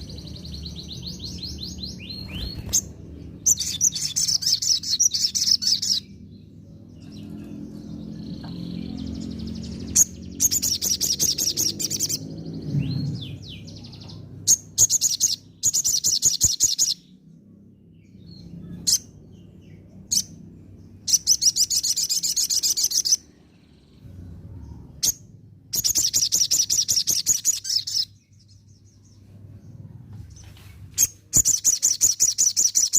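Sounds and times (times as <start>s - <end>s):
sharp bird chirps: 0.0s - 6.2s, 8.2s - 17.1s, 21.0s - 24.0s, 25.0s - 28.6s, 31.0s - 32.9s
bird singing trilled phrases: 0.0s - 17.2s, 17.9s - 29.8s, 31.0s - 32.9s
low background rumble: 17.0s - 31.4s.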